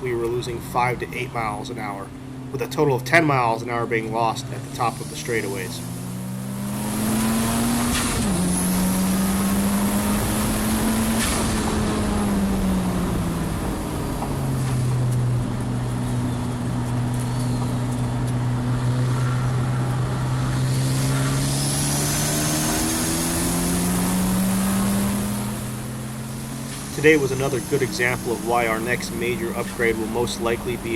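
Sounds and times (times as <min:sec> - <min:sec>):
race car engine revving: 0:00.0 - 0:30.9
tyre spray on wet track: 0:06.8 - 0:15.2, 0:20.6 - 0:30.9.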